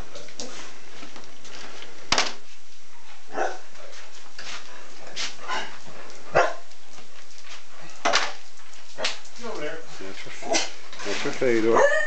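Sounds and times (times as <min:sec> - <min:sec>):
dogs barking: 0:03.3 - 0:03.7, 0:05.5 - 0:06.8, 0:11.7 - 0:12.0.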